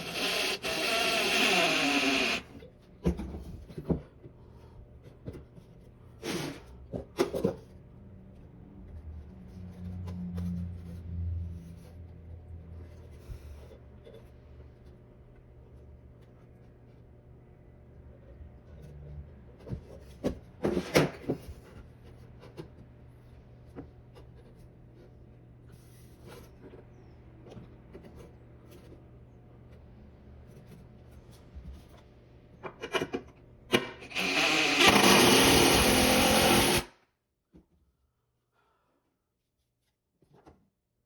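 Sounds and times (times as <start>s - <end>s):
power tool running: 0.0s - 2.5s, 34.0s - 36.9s.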